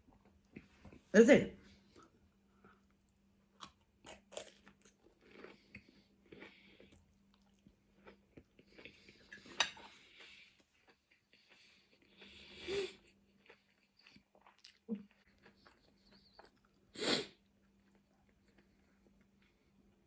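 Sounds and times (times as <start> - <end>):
chewing and mouth sounds: 2.6 - 16.9
cutlery clicking against dish: 9.4 - 9.8.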